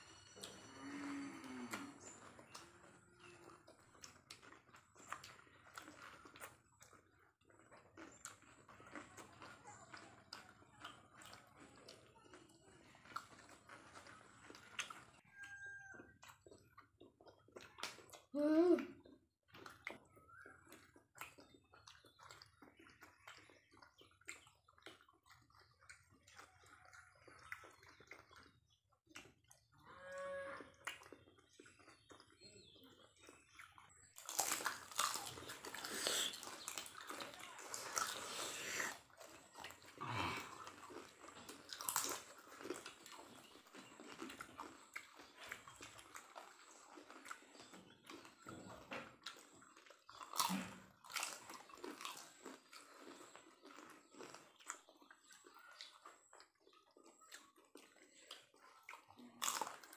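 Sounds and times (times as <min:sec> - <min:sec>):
wet chewing and lip-smacking: 0:01.4 - 0:59.9.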